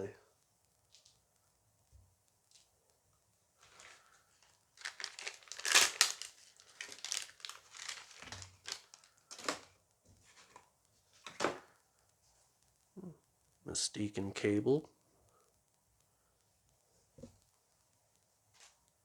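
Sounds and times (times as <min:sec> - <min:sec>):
foil pack tearing and crinkling: 0:03.6 - 0:09.7.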